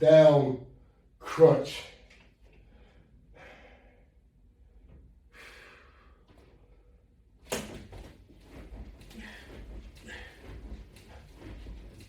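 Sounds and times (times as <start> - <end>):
man exhaling breathily: 2.7 - 4.2, 5.3 - 6.3.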